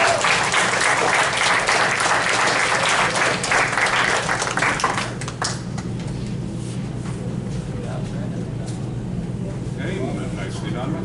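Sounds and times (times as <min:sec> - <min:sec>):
audience clapping: 0:00.0 - 0:06.0.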